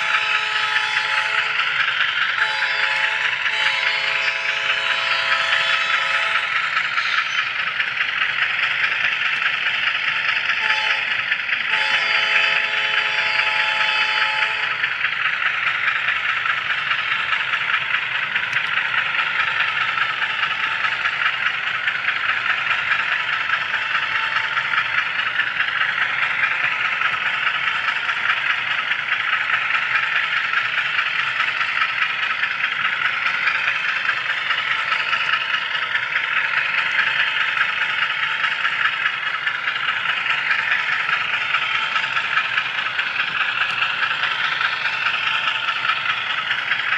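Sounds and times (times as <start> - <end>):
model train horn: 0.0 - 7.2, 10.5 - 15.0
model train hissing rattle: 0.0 - 46.9.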